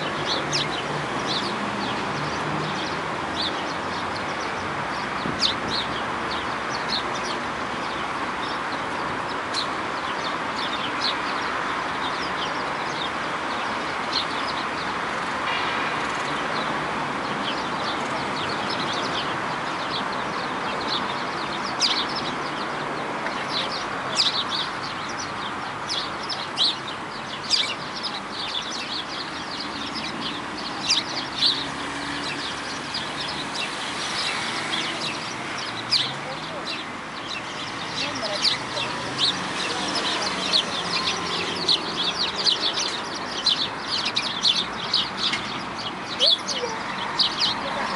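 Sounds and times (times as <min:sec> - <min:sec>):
birds chirping: 0:00.0 - 0:47.9
background murmur: 0:45.8 - 0:47.9.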